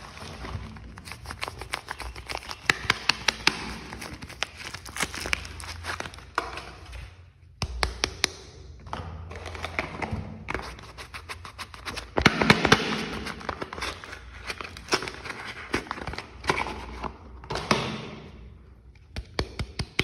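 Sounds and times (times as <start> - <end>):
wrapper crinkling: 0.0 - 6.9.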